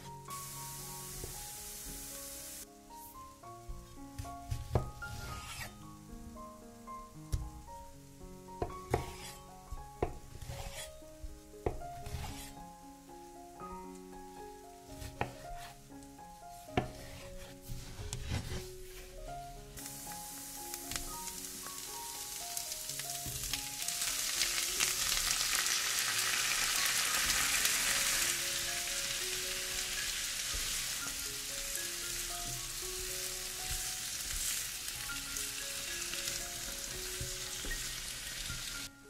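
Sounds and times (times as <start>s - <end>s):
vegetables sizzling in oil: 0.0s - 3.4s, 4.2s - 5.8s, 8.5s - 11.1s, 12.0s - 12.6s, 19.7s - 38.9s
spatula stirring in pan: 4.5s - 5.7s, 8.9s - 11.0s, 12.0s - 12.6s, 16.8s - 19.0s, 26.6s - 38.8s.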